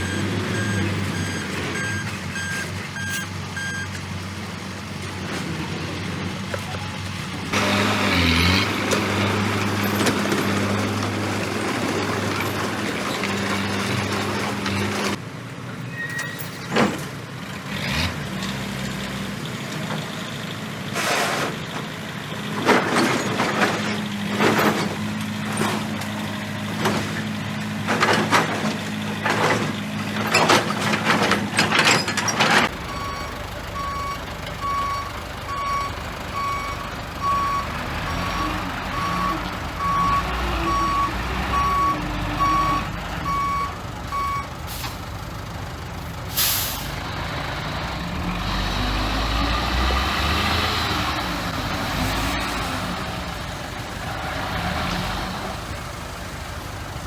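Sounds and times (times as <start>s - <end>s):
backup alarm beeping: 0.0s - 4.0s, 32.9s - 37.7s
heavy diesel machinery running: 0.0s - 15.7s, 16.6s - 57.0s
metal clanks and knocks: 22.6s - 32.7s.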